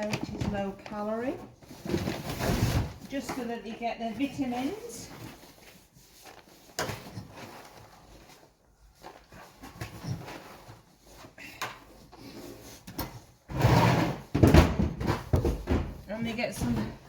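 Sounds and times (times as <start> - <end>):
rustling: 0.0 - 13.5.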